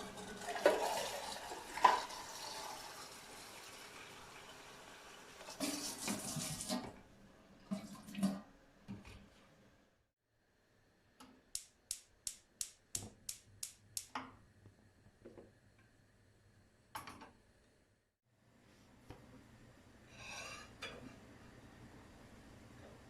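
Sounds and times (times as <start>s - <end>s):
water rushing from tap: 0.0s - 6.8s.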